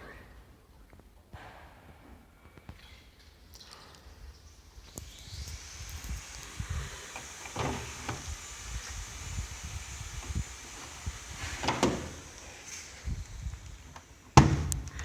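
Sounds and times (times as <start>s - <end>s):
faint high hiss: 3.4s - 15.0s
handling knocks and rubbing: 5.5s - 15.0s.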